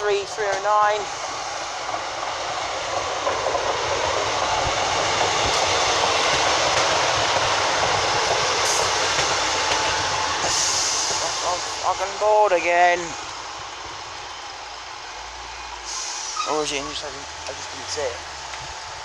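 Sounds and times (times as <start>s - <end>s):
diesel train passing: 0.0s - 19.0s.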